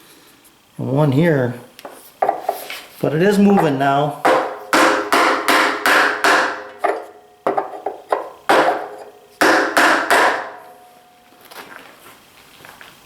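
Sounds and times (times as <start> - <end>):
hammer blows with ringing: 3.5 - 11.2.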